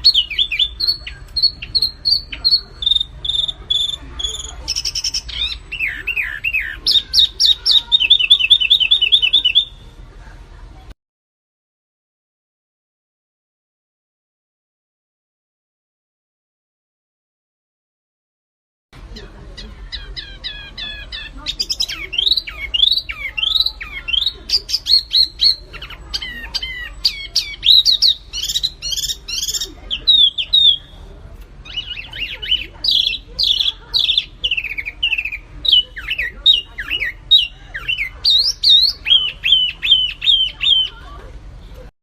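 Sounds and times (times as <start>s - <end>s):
songbird singing chattering song: 0.0s - 10.0s, 19.0s - 41.2s.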